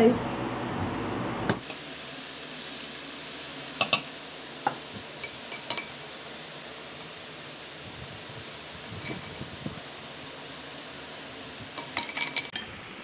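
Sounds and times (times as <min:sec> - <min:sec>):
steady low hiss: 0:00.0 - 0:13.0
utensil clinking against bowl: 0:05.2 - 0:06.0, 0:11.8 - 0:12.6.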